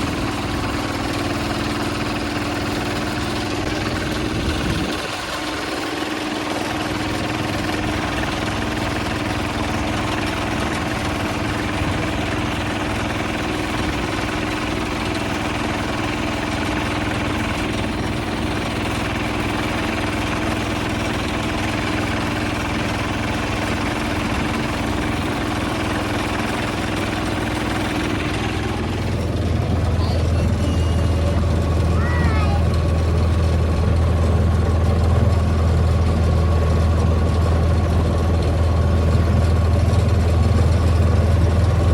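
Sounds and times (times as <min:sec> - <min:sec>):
hand tractor engine running: 0:00.0 - 0:41.9.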